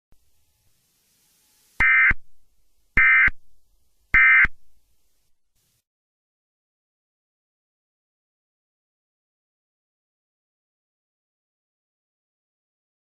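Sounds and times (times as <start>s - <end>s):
screechy digital tone bursts: 1.8s - 2.2s.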